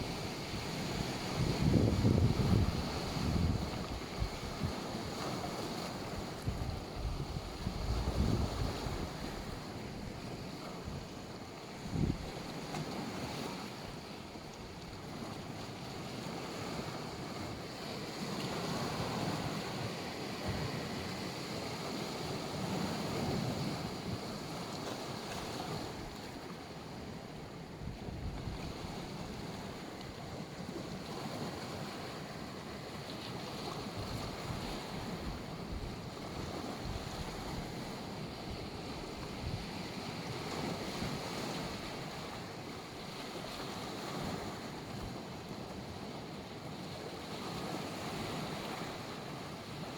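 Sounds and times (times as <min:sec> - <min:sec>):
wind buffeting microphone: 0:00.0 - 0:11.1, 0:11.7 - 0:13.6, 0:27.8 - 0:32.7, 0:33.4 - 0:42.4
sea waves washing onto beach: 0:00.0 - 0:49.9.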